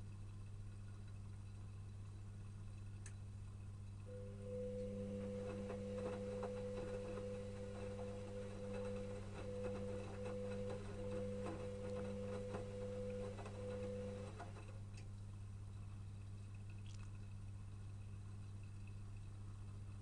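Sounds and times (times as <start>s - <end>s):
low hum: 1.5s - 14.7s
washing machine motor whining: 4.0s - 14.8s.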